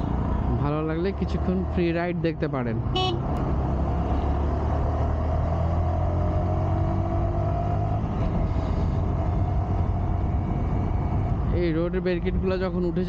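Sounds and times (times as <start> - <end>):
wind noise: 6.8 - 13.0.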